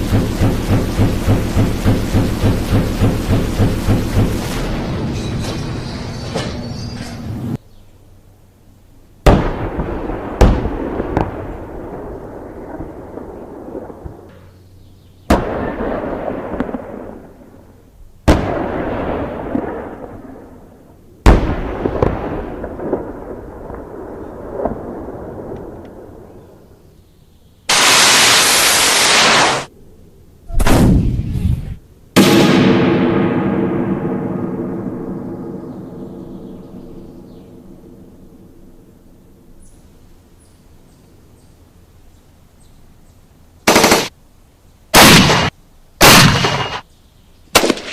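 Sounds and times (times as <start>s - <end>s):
heavy gunshots with echo: 0.0s - 5.4s, 27.7s - 29.7s, 30.5s - 38.2s, 43.7s - 44.1s, 45.0s - 46.8s, 47.6s - 47.9s.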